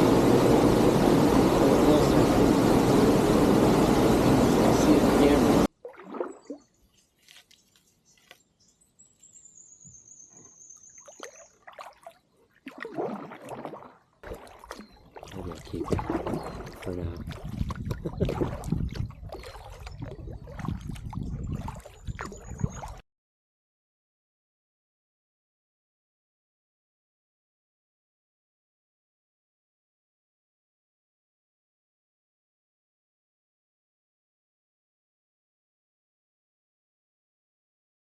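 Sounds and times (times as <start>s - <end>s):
paddle splashing and dripping water: 4.4s - 8.4s, 10.7s - 23.0s.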